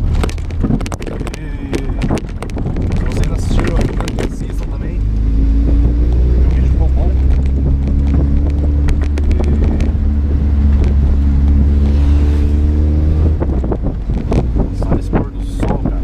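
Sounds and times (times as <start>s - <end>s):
car engine running: 0.0s - 16.0s
road and wind noise: 0.0s - 16.0s.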